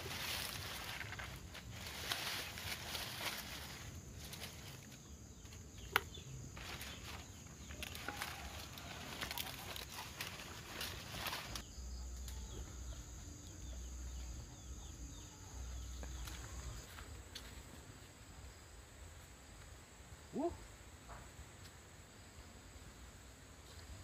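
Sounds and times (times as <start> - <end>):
dry leaves rustling and crackling: 0.0 - 11.7.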